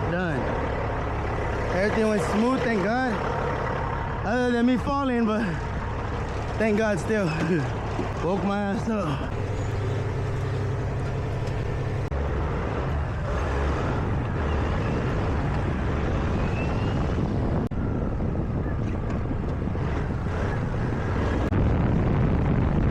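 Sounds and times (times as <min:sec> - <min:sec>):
diesel truck engine running: 0:00.0 - 0:22.9
wind noise on microphone: 0:09.3 - 0:22.9.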